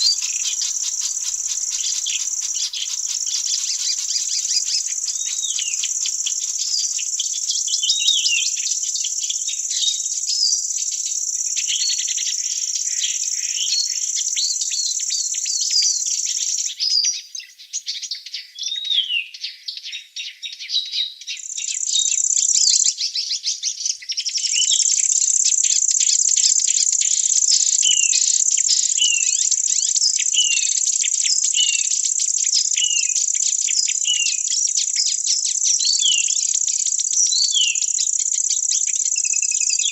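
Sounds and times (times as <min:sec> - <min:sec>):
birds calling: 0:00.0 - 0:09.6
insects droning: 0:00.0 - 0:16.7, 0:24.6 - 0:39.9.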